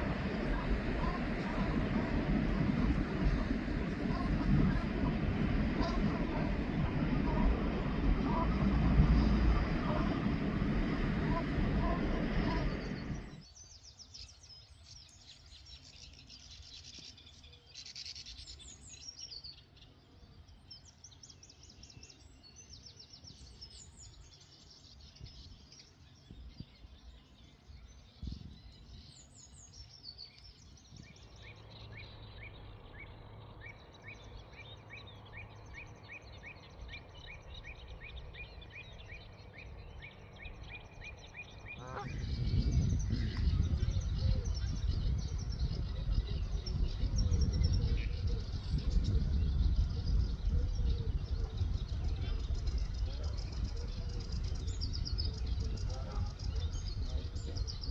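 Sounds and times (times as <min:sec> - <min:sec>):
faint low steady hum: 0:00.0 - 0:13.4
songbirds singing and chirping: 0:00.0 - 0:57.9.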